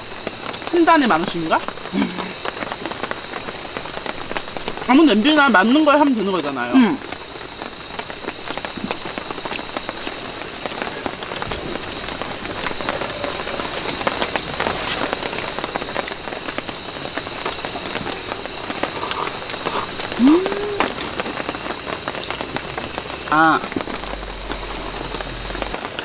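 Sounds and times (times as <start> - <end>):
rain on a tarp: 0.0 - 26.0
steady high tone: 18.0 - 21.2.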